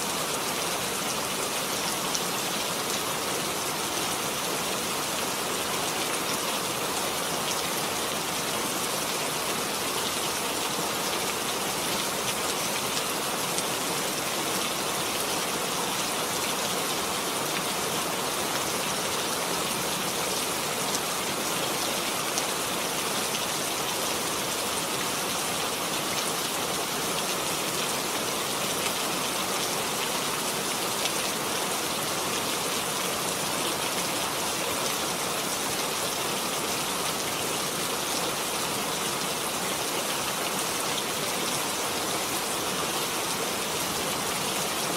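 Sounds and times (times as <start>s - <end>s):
rain pattering: 0.0s - 44.9s.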